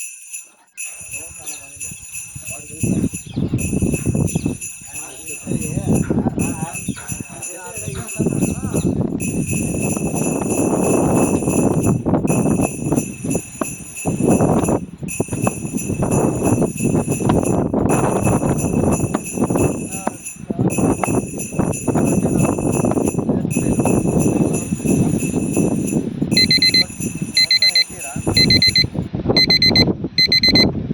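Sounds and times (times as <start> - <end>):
bell ringing: 0.0 - 30.6.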